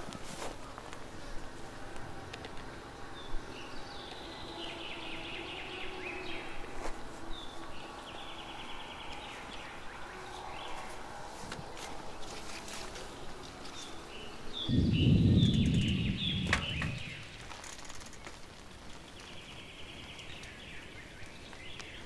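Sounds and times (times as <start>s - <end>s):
outdoor background noise: 0.0s - 22.0s
small birds warbling: 0.0s - 22.0s
bird trill: 3.0s - 18.3s.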